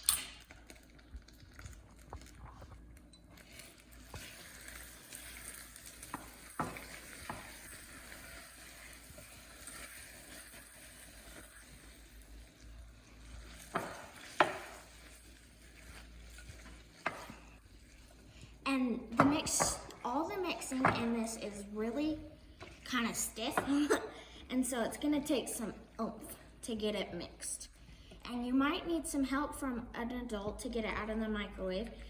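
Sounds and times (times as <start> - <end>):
spoon stirring thick syrup: 13.2 - 18.4.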